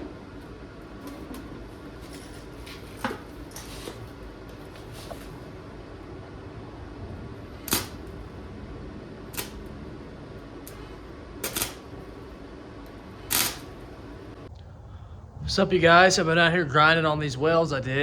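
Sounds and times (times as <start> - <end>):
low hum: 0.0 - 18.0
sharp clicks: 9.3 - 9.7, 13.3 - 13.7.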